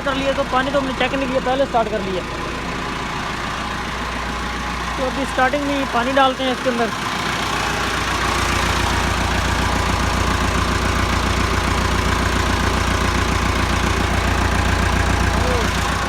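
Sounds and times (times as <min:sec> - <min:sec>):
tractor diesel engine idling: 0:00.0 - 0:16.0.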